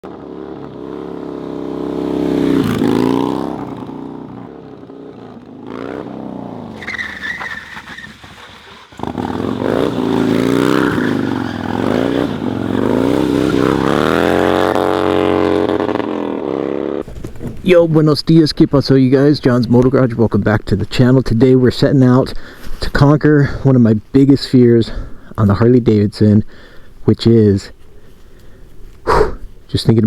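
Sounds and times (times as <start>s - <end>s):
motorcycle engine revving: 0.0s - 17.1s
tire squeal: 0.9s - 14.6s.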